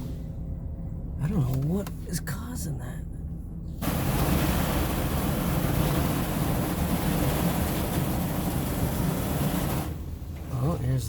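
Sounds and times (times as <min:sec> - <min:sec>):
car wash water spray hissing: 0:03.8 - 0:11.0.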